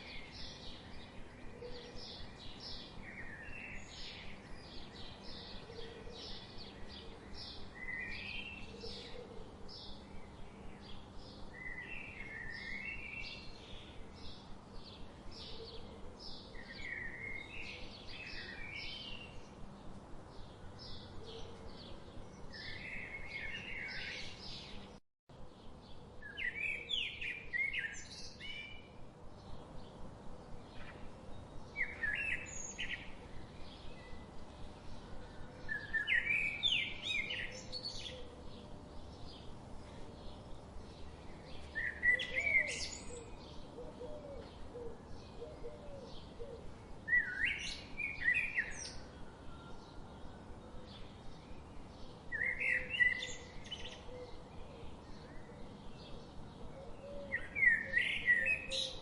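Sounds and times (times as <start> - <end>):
birds chirping and singing: 20.3 - 59.0.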